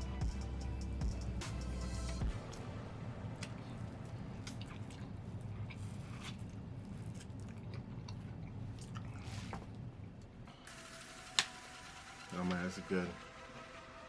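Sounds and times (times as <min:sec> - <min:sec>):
person chewing food: 0:03.4 - 0:10.3.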